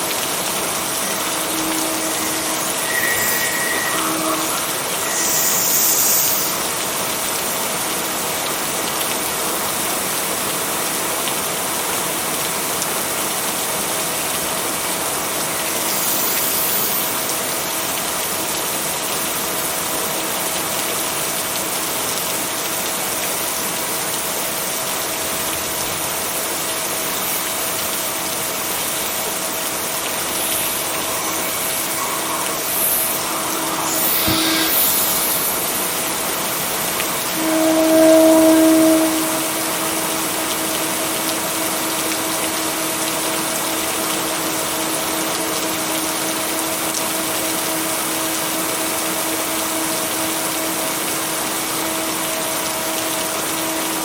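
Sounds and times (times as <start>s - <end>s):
steady rain hiss: 0.0s - 54.0s
faint steady tone: 37.1s - 41.2s.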